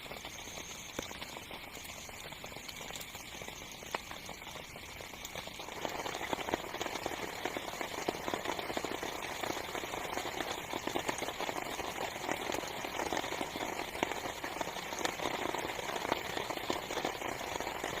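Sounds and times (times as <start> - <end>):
heavy rain on tent fabric: 5.6 - 18.0.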